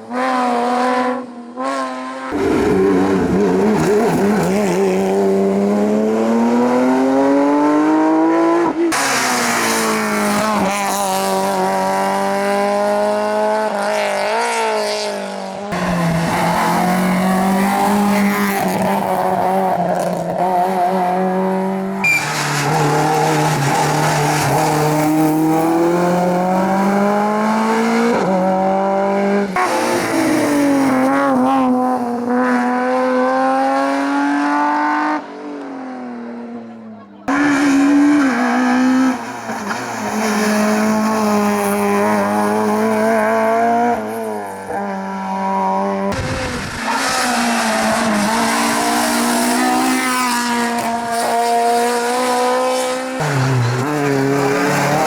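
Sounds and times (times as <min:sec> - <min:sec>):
racing car engines revving: 0:00.0 - 0:55.0.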